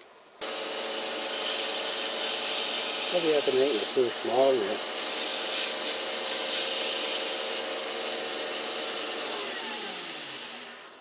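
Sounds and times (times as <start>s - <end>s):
wood lathe running: 0.4s - 11.0s
hiss of spinning wood being worked: 0.5s - 7.8s.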